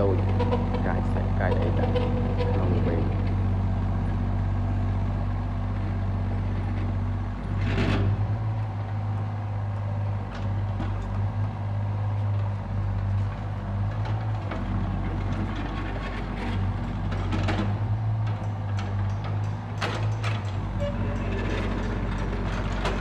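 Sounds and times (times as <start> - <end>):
excavator engine running: 0.0 - 23.0
knocks and clanks: 13.9 - 23.0.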